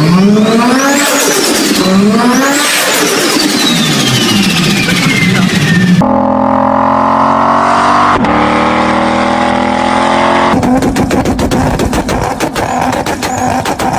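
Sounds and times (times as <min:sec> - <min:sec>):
car engine revving: 0:00.0 - 0:13.9
exhaust popping and cracking: 0:10.5 - 0:13.9.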